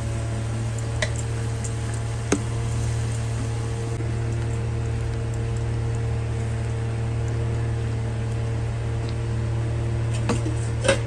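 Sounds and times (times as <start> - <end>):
paste sizzling in oil: 0.0 - 7.2
low hum: 0.0 - 11.0.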